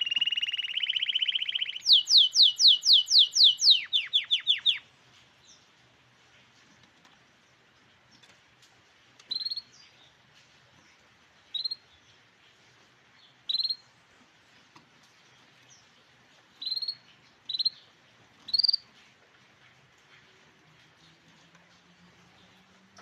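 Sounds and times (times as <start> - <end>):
canary trilled calls: 0.0 - 4.8, 18.5 - 18.8.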